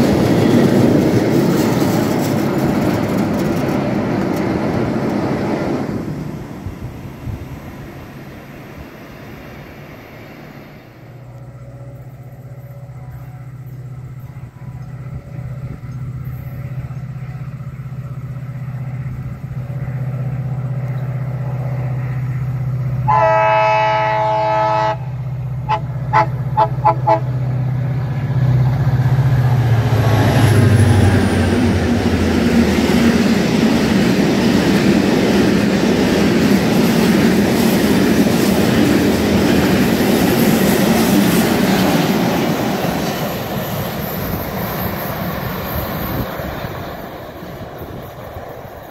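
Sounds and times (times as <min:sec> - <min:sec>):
diesel train engine hum: 0:00.0 - 0:48.9
rail and wheel noise: 0:00.0 - 0:48.9
train horn blasts: 0:23.0 - 0:27.5.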